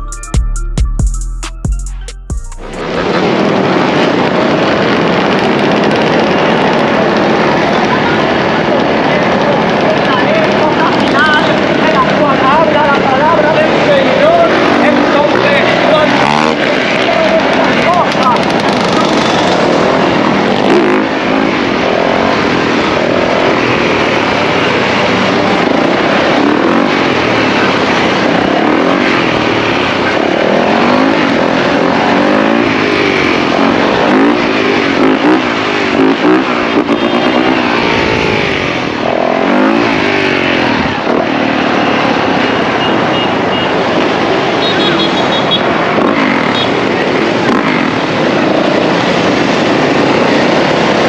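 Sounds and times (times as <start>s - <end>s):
dirt bikes revving: 2.7s - 51.0s.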